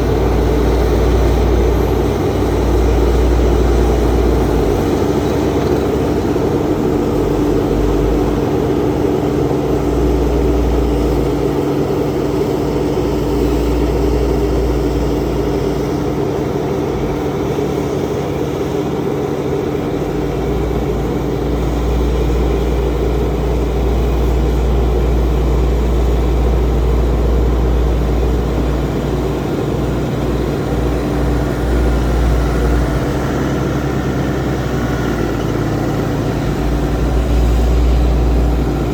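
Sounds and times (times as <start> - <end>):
heavy engine machinery drone: 0.0 - 38.9.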